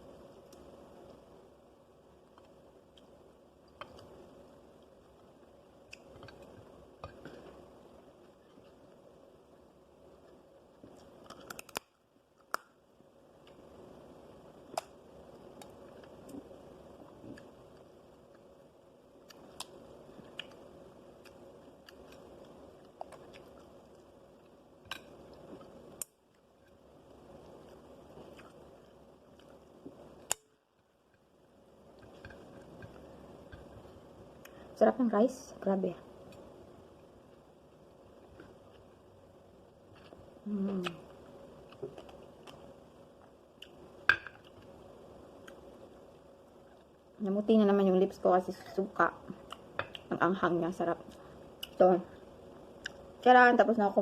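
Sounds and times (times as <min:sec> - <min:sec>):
sharp clicks and smacks: 0:10.9 - 0:12.8
faint chewing: 0:19.2 - 0:30.4, 0:39.9 - 0:44.8.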